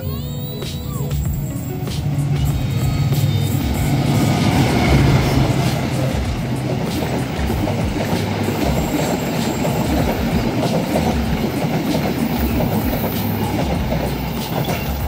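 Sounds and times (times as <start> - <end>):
train coaches rumbling past: 0.0 - 15.0
wheels clacking over rail joints: 0.6 - 15.0.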